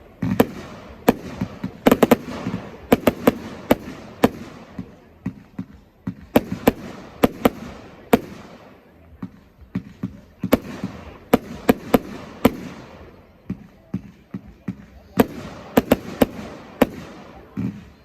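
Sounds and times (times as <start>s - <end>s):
fireworks bangs: 0.0s - 18.0s
small fireworks pops: 0.0s - 18.0s.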